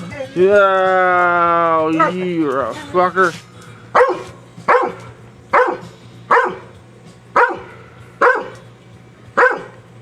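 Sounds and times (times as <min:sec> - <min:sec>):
dog barking: 0:04.0 - 0:06.7, 0:07.4 - 0:08.6, 0:09.4 - 0:09.8.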